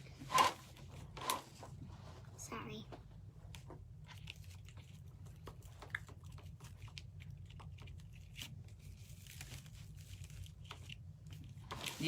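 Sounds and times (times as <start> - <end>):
low steady hum: 0.0 - 12.0
mesh crinkling and crackling: 3.5 - 12.0.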